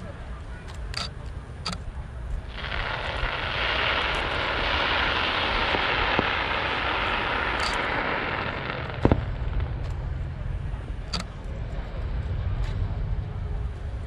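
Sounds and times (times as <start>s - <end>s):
low rumble: 1.9s - 14.0s
fireworks hissing crackle: 2.4s - 14.0s
faint sharp pops: 7.4s - 10.1s.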